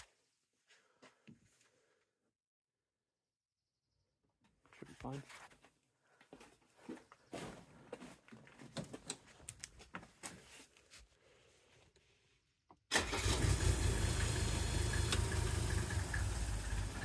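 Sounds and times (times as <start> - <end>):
diesel engine starting and idling: 12.9 - 17.0.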